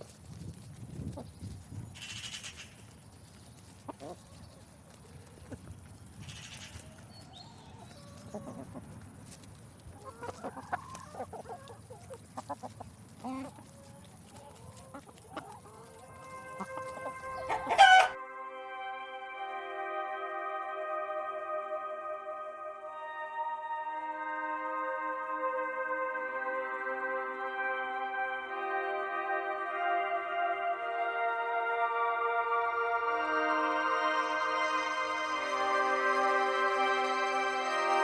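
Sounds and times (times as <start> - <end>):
chicken clucking: 0.0 - 18.2
soft ambient music: 14.3 - 38.0.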